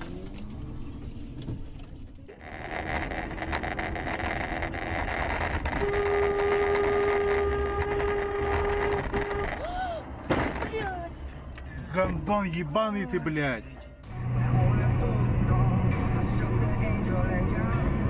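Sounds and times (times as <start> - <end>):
car driving road noise: 0.0 - 18.0
car horn blast: 5.8 - 9.7.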